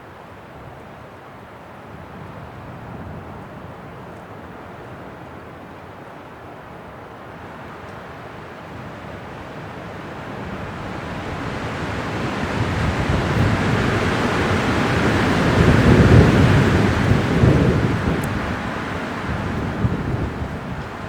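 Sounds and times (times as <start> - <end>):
wind blowing: 8.7 - 21.0.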